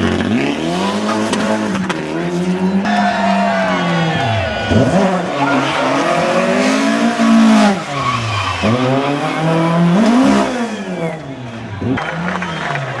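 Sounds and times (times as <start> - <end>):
race car engine revving: 0.0 - 13.0
tyre squeal: 2.9 - 11.2.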